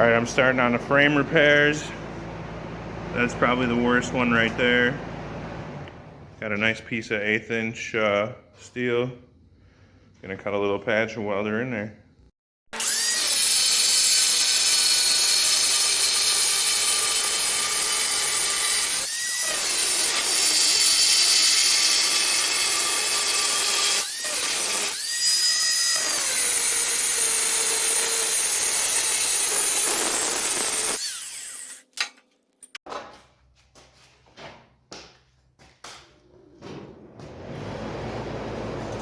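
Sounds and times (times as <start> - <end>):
angle grinder cutting steel: 12.8 - 31.9.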